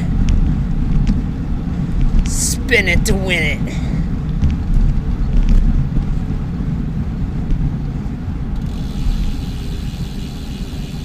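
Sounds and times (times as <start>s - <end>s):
road noise: 0.0s - 11.0s
wind rumbling on microphone: 0.0s - 11.0s.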